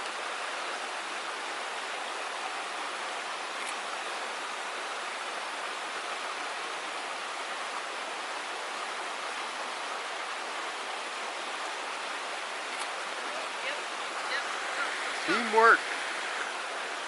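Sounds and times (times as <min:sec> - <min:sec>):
creek water flowing: 0:00.0 - 0:17.0.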